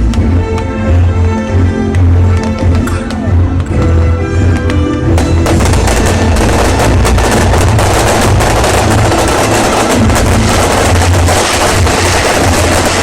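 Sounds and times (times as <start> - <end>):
fireworks cracks and bangs: 2.4 - 13.0
deep rumble: 2.6 - 13.0.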